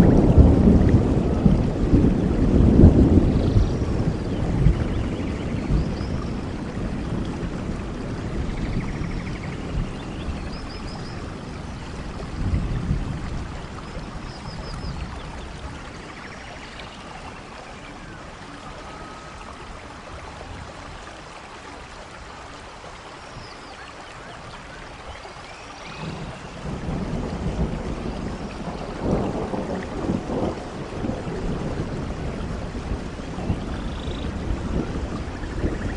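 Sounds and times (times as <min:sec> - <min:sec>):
thunder rumbling: 0:00.0 - 0:16.6, 0:25.9 - 0:35.9
steady rain: 0:00.0 - 0:35.9.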